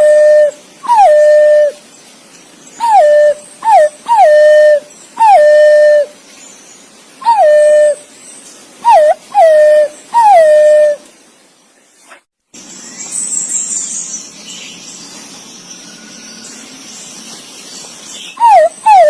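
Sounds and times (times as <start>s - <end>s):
pigeon whistled calls: 0.0s - 1.8s, 2.8s - 6.1s, 7.2s - 8.0s, 8.8s - 11.0s, 18.3s - 19.0s.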